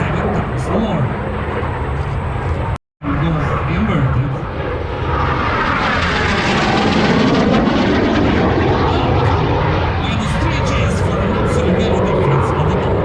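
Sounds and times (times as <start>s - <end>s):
jet aircraft passing by: 0.0s - 13.0s.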